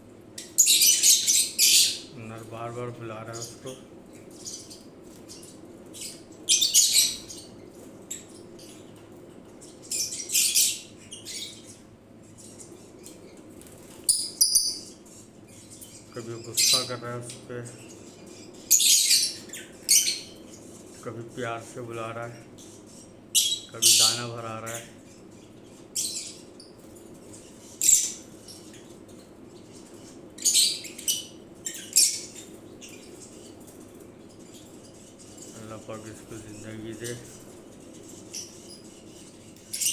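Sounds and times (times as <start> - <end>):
lovebird chirping: 14.1 - 17.0.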